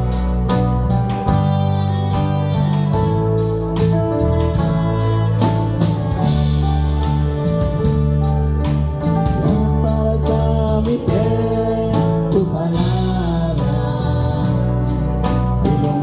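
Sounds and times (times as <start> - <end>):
live worship band music: 0.0 - 16.0
people singing: 9.4 - 16.0.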